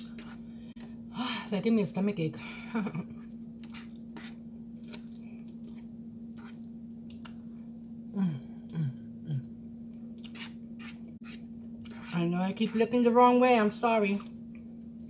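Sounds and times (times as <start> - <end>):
steady low hum: 0.0 - 15.0
person chewing: 3.6 - 8.0, 9.9 - 12.1.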